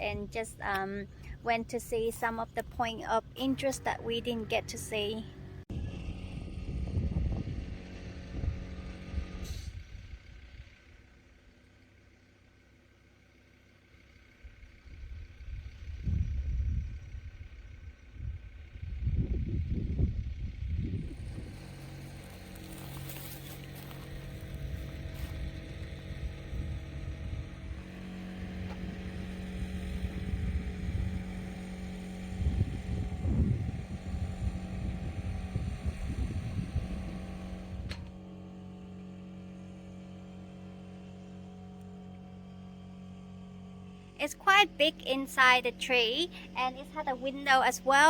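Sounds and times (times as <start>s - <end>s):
vehicle engine running: 0.0s - 48.0s
wind rumble on microphone: 5.7s - 10.7s, 14.8s - 38.2s.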